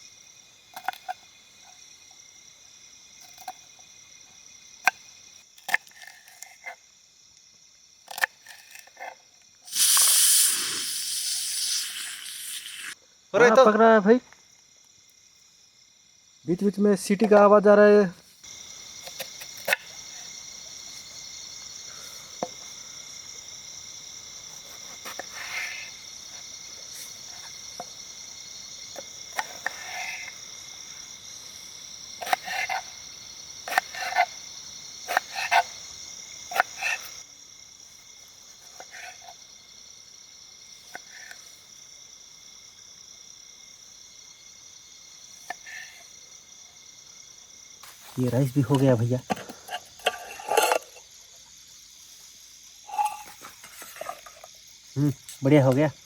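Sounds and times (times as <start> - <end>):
high-pitched insect drone: 9.7 - 13.7.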